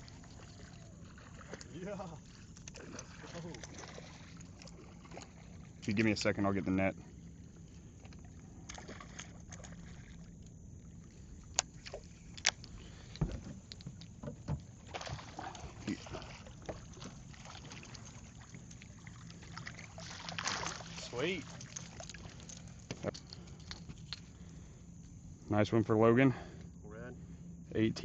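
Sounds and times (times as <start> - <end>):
soft water noise: 0.0 - 28.0
clicks and knocks on boat: 11.5 - 15.8.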